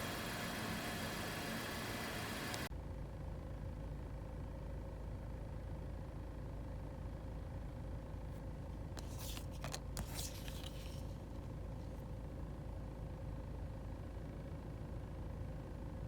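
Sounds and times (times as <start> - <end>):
car engine idling: 0.0 - 2.7
rustling scraping sounds: 9.0 - 12.0.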